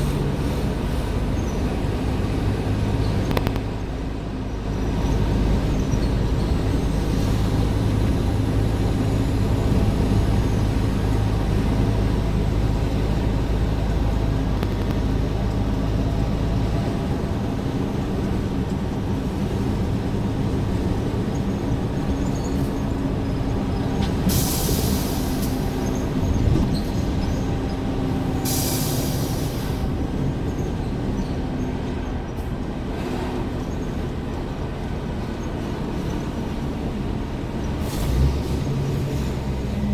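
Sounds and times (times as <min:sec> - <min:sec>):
truck diesel engine rumbling: 0:00.0 - 0:39.9
compressed air hisses: 0:24.3 - 0:25.7, 0:28.4 - 0:29.8.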